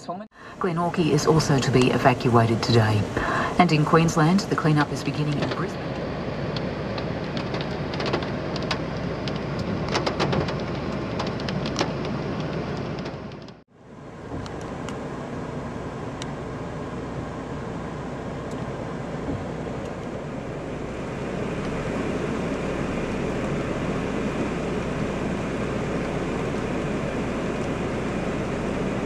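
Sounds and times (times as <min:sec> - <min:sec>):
tyre noise on wet road: 0:01.2 - 0:29.0
heavy rain: 0:02.8 - 0:13.6
raindrops tapping: 0:04.6 - 0:13.6.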